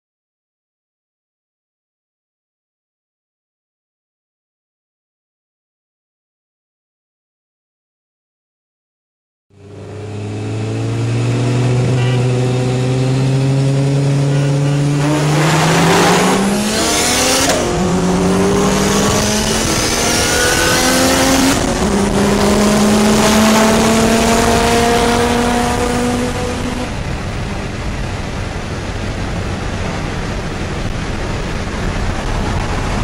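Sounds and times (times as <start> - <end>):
car engine accelerating hard: 9.6 - 33.0.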